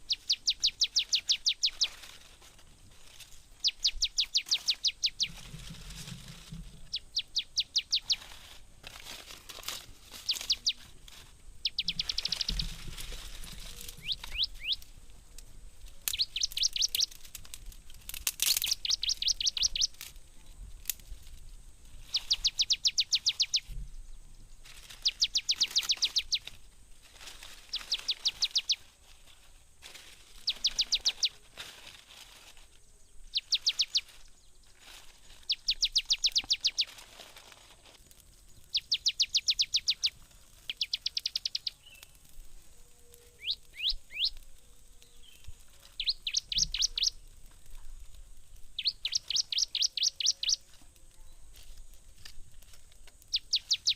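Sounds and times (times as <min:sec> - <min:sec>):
bird singing rapid trills: 0:00.0 - 0:02.0, 0:03.6 - 0:05.4, 0:06.9 - 0:08.2, 0:10.2 - 0:10.8, 0:11.6 - 0:12.7, 0:13.8 - 0:14.8, 0:16.1 - 0:17.2, 0:18.5 - 0:20.0, 0:22.1 - 0:24.2, 0:24.8 - 0:26.5, 0:27.7 - 0:28.8, 0:30.4 - 0:31.4, 0:33.0 - 0:34.6, 0:35.4 - 0:36.9, 0:38.7 - 0:40.1, 0:40.7 - 0:42.1, 0:43.4 - 0:44.4, 0:45.0 - 0:47.2, 0:48.8 - 0:50.7, 0:53.3 - 0:53.9.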